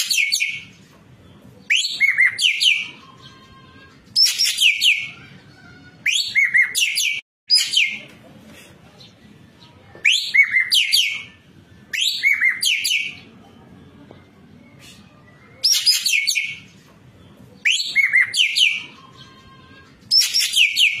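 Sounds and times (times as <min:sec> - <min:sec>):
bird singing whistled trills: 0:01.7 - 0:03.3, 0:10.0 - 0:13.2, 0:15.3 - 0:16.6, 0:17.6 - 0:19.4, 0:20.1 - 0:21.0.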